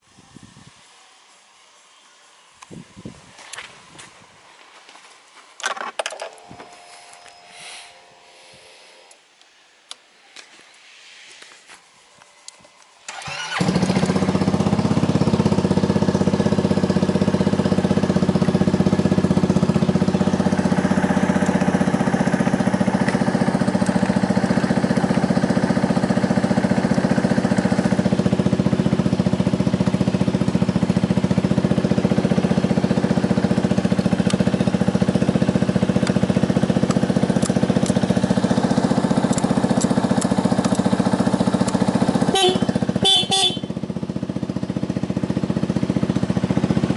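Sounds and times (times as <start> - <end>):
scooter engine starting and idling: 13.0 - 46.9.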